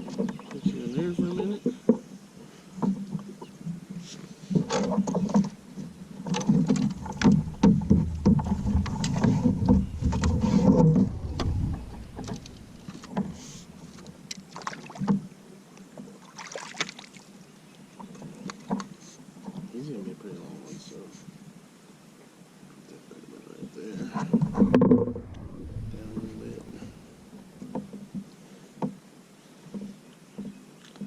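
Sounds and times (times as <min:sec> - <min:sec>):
bumps and knocks against kayak hull: 0:04.5 - 0:15.2, 0:24.1 - 0:29.0
clicks and rustles: 0:04.5 - 0:15.2.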